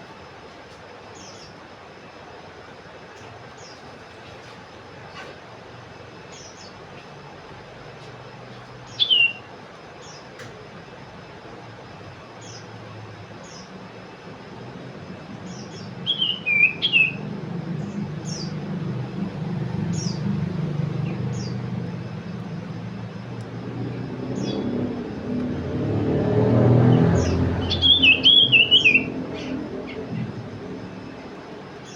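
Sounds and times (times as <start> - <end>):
songbird chirping: 8.6 - 10.4, 12.4 - 31.9.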